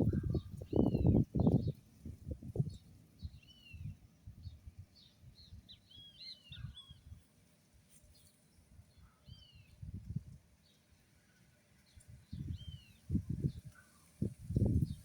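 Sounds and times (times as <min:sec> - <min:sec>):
birds chirping: 0:00.0 - 0:01.9, 0:02.6 - 0:07.2.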